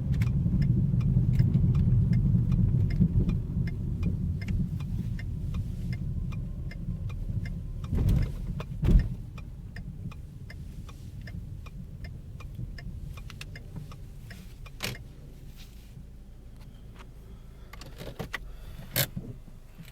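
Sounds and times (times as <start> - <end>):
low road rumble: 0.0 - 19.9
thumps: 7.9 - 9.2.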